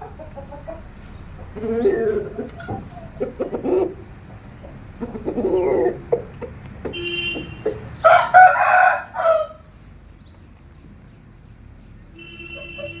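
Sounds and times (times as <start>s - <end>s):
rooster crowing: 8.0s - 9.6s.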